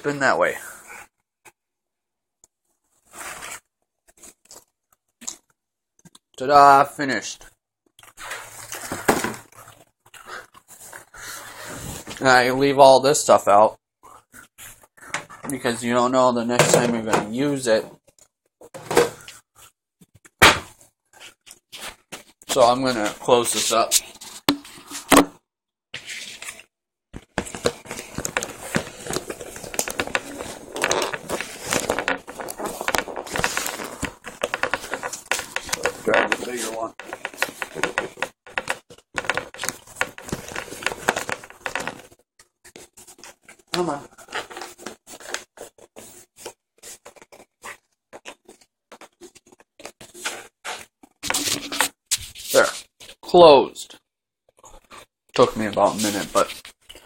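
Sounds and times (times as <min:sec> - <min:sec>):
container lid clicking and scraping: 0:27.2 - 0:42.1
plastic packaging crinkling: 0:27.4 - 0:42.2.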